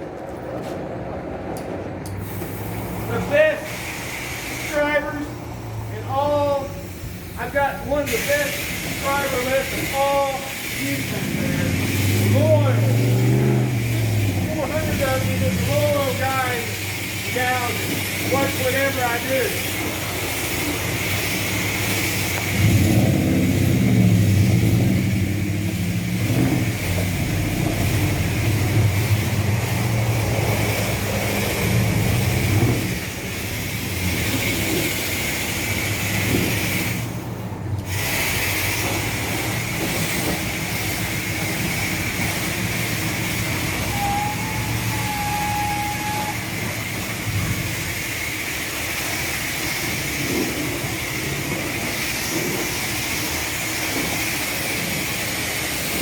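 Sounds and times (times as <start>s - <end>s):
pressure spray wand hissing: 2.2s - 56.0s.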